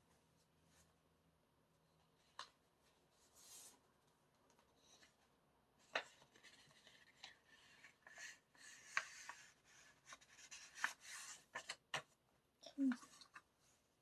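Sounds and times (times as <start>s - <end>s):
paper and card rustling: 5.8s - 12.1s.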